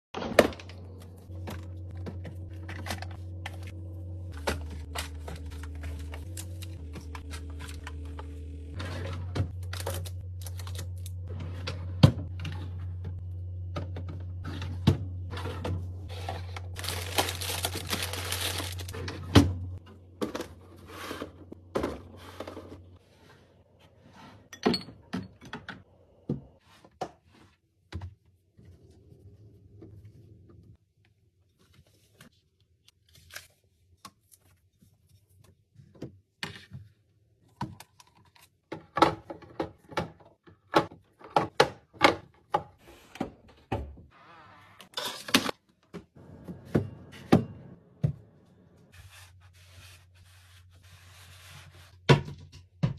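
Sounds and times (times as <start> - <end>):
low steady hum: 0.5 - 23.0
plastic tearing and crinkling: 9.5 - 11.3, 16.2 - 19.1.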